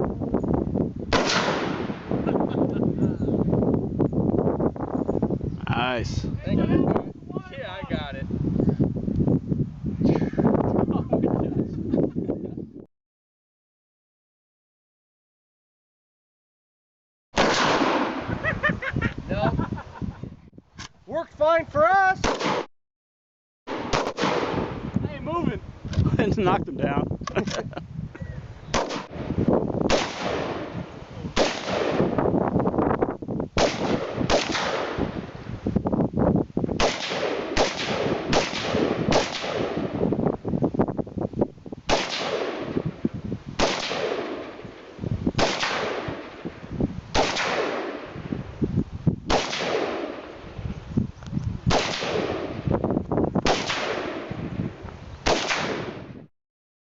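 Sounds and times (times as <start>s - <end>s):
gunshots with ringing echo: 1.1s - 2.2s, 17.4s - 18.3s, 23.7s - 24.8s, 28.7s - 32.2s, 33.6s - 35.2s, 36.8s - 40.0s, 41.9s - 42.9s, 43.6s - 44.8s, 45.4s - 46.4s, 47.1s - 48.2s, 49.3s - 50.4s, 51.7s - 52.7s, 53.4s - 54.4s, 55.2s - 56.1s.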